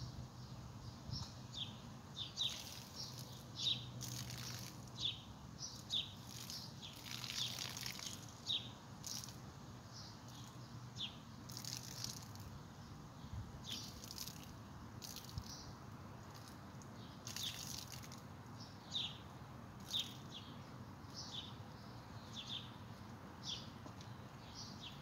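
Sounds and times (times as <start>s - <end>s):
birds chirping: 0.0s - 12.2s, 15.0s - 25.0s
water pouring onto plants: 2.4s - 5.1s, 5.7s - 9.4s, 11.5s - 12.5s, 13.7s - 15.6s, 16.2s - 18.3s, 19.8s - 20.3s.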